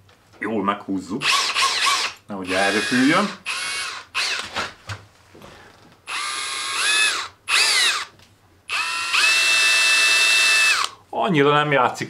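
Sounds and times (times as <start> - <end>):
cordless drill motor whine: 1.2 - 4.5, 6.1 - 8.1, 8.7 - 11.0.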